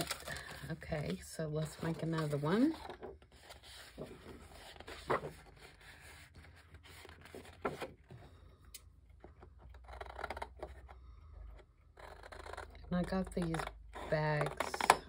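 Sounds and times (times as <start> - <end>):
paper rustling: 0.0 - 8.0.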